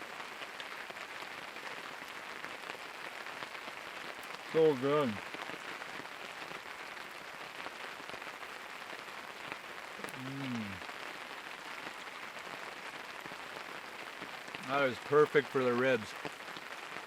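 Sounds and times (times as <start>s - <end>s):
steady rain falling: 0.0s - 17.0s
man humming: 10.0s - 10.8s.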